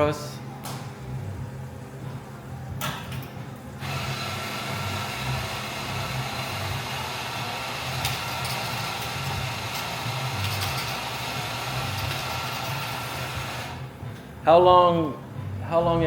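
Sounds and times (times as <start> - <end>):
low pulsing hum: 0.4 - 2.8
coffee machine whirring hiss: 3.7 - 13.9.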